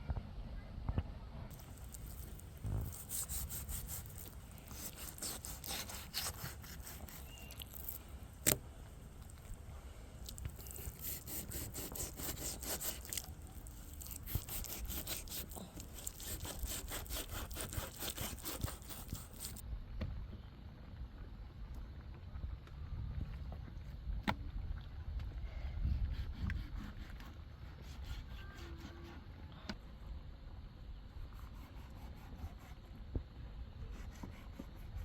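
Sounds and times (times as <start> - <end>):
quick scraping strokes: 1.5 - 8.6, 10.3 - 19.6.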